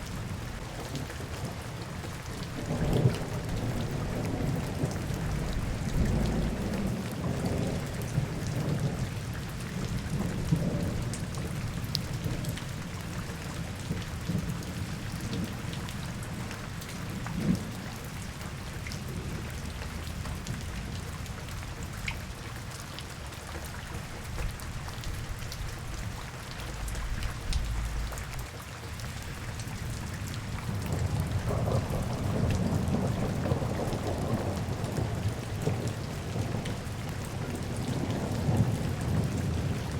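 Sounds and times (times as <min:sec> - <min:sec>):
steady rain falling: 0:00.0 - 0:39.9
low rolling rumble: 0:26.0 - 0:28.5.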